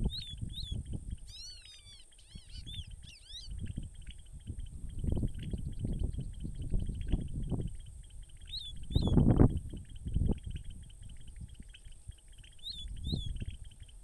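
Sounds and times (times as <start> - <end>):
background bird chatter: 0.0 - 14.0
bird calling sharp notes: 0.2 - 3.6.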